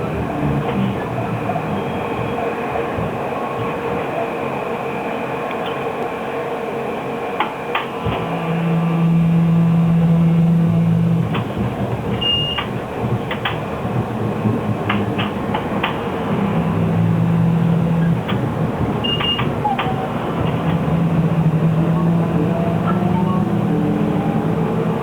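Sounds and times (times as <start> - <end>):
trolleybus electric hum: 0.0 - 25.0.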